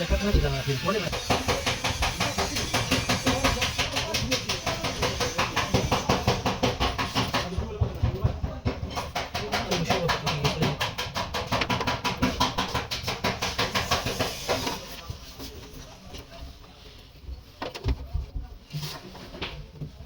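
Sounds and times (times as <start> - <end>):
hammer tapping on car panel: 1.1 - 8.0, 8.7 - 14.8.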